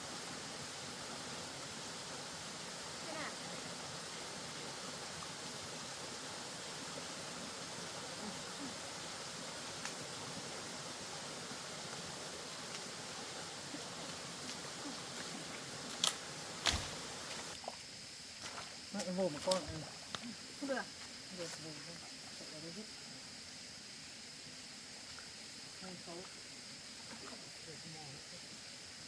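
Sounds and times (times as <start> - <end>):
water rushing: 0.0 - 17.6.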